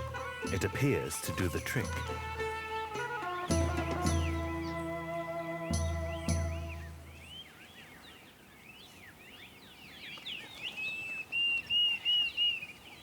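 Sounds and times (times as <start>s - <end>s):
held music chord: 0.0s - 7.4s
birds chattering and chirping: 0.0s - 13.0s
cuckoo whistled call: 3.0s - 7.6s.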